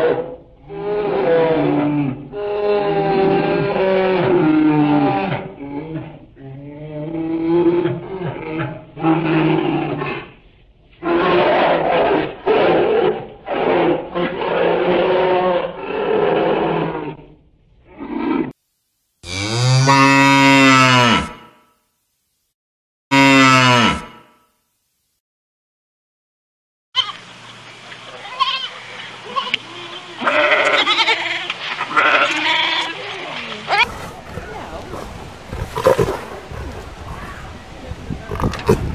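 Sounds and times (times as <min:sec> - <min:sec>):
goat bleating: 0:28.2 - 0:33.0
bear calling: 0:33.7 - 0:38.9.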